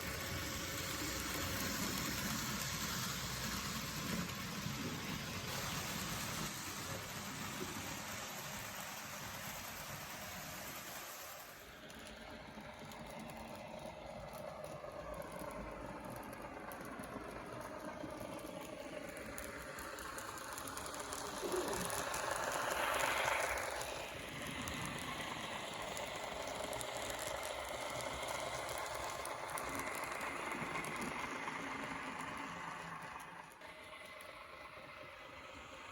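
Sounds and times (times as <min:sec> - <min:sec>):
model train wheels clicking on track: 0:00.0 - 0:35.9
small electric motor whining: 0:11.9 - 0:35.3.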